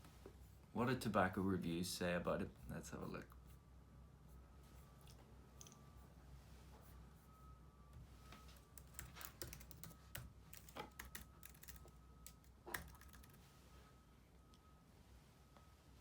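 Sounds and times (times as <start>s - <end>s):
faint typing on computer keyboard: 8.6s - 13.4s.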